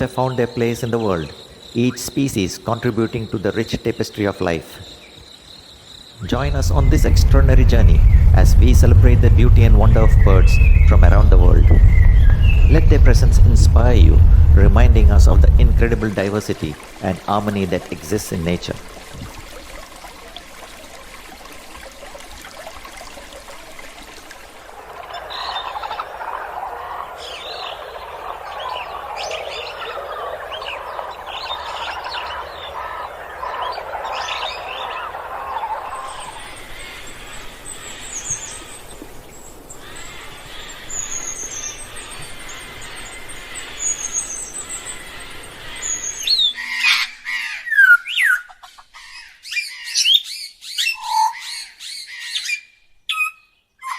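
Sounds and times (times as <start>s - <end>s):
birds chattering: 0.0s - 18.9s, 25.1s - 53.9s
high bird chirps: 9.3s - 15.2s.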